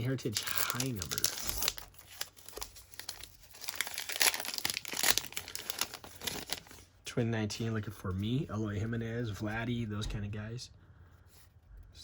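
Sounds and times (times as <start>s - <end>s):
wrapper crackling and tearing: 0.0s - 6.8s.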